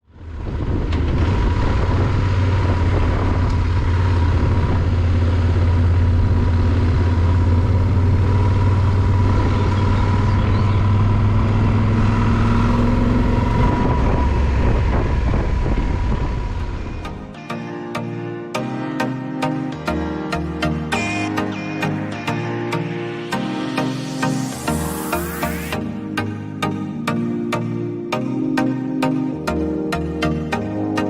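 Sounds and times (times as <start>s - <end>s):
motorcycle engine drone: 0.0s - 31.0s.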